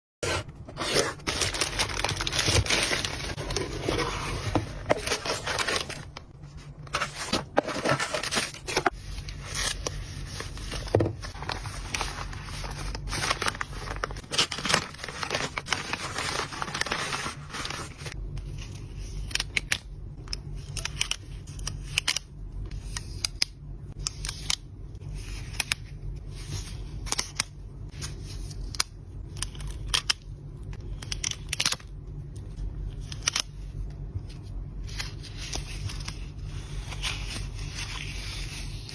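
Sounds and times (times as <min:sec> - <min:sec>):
packaging rustling and tearing: 0:00.3 - 0:18.2.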